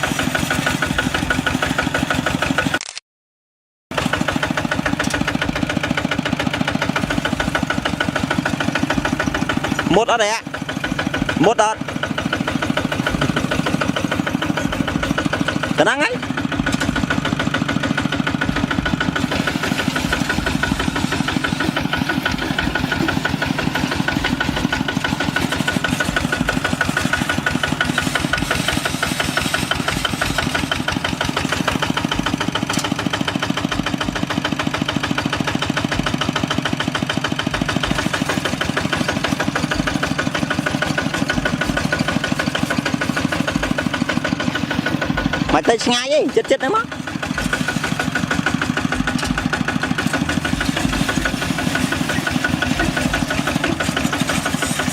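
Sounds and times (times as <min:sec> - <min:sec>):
diesel engine chugging: 0:00.0 - 0:02.8, 0:03.9 - 0:54.9.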